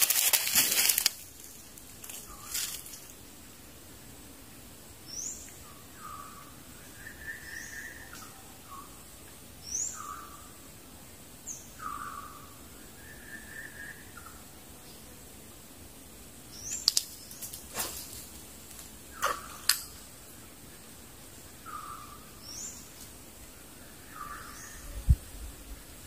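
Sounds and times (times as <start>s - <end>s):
birds high rising whistles: 5.1s - 9.0s, 11.5s - 14.4s.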